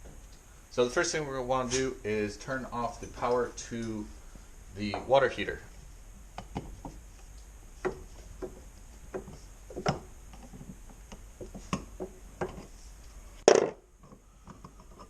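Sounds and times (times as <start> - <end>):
light knocks and taps: 7.8 - 12.7.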